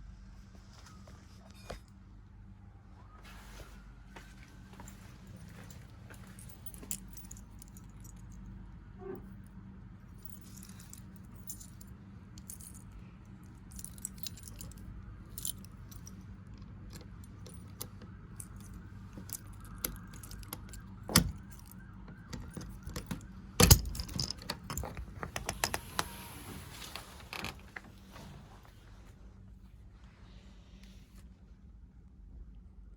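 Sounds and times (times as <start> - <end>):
keys jangling: 5.4 - 8.4, 10.2 - 16.3, 16.9 - 25.7.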